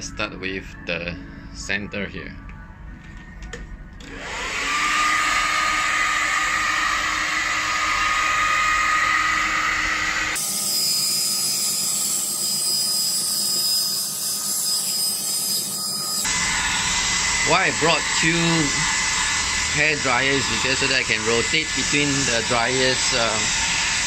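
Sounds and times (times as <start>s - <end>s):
hair dryer blowing: 4.0s - 11.1s, 16.2s - 24.0s.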